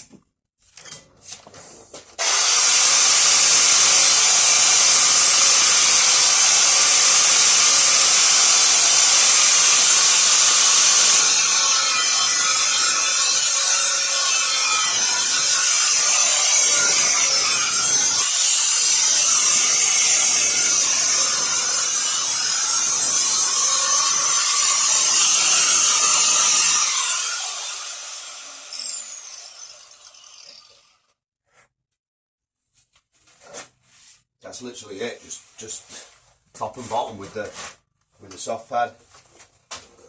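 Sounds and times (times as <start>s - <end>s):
angle grinder grinding: 2.2s - 31.0s.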